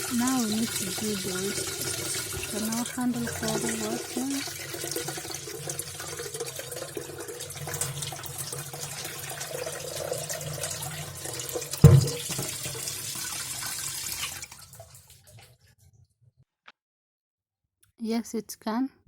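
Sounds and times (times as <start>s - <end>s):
tap water running into kettle: 0.0s - 15.6s
sharp knock: 11.8s - 12.2s.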